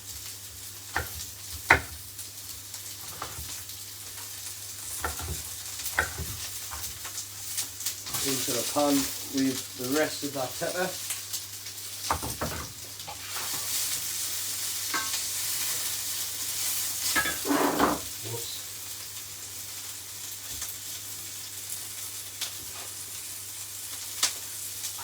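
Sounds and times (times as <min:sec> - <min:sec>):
vegetables sizzling in a pan: 0:00.0 - 0:25.0
utensil scraping pan: 0:17.2 - 0:18.1.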